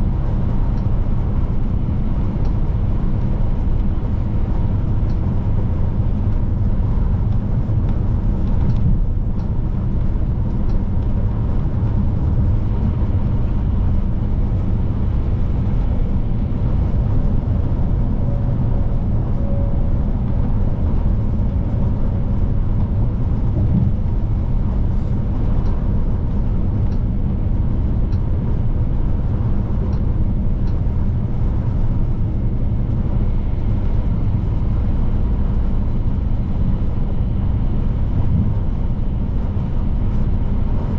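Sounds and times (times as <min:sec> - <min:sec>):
truck diesel engine drone: 0:00.0 - 0:40.9.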